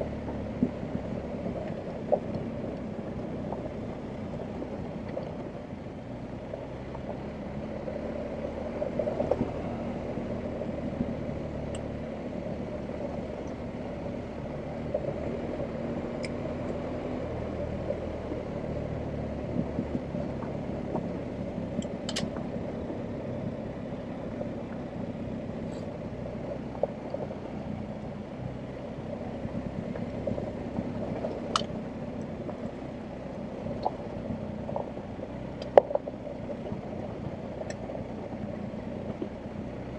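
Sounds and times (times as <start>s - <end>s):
motorcycle engine running: 0.0s - 39.9s
sharp clicks: 21.8s - 22.4s, 31.5s - 31.8s.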